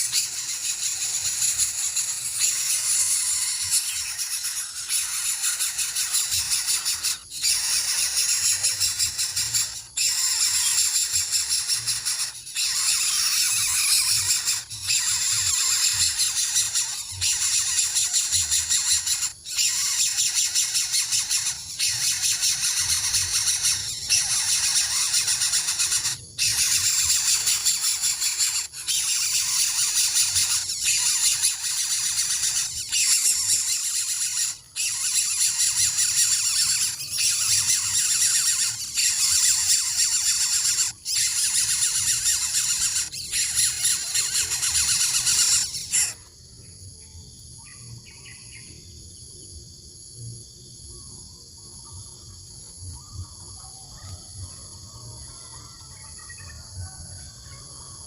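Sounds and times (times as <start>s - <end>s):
harsh hissing screech: 0.0s - 46.2s
faint bird chirps: 0.0s - 58.0s
insect trilling: 0.0s - 58.0s.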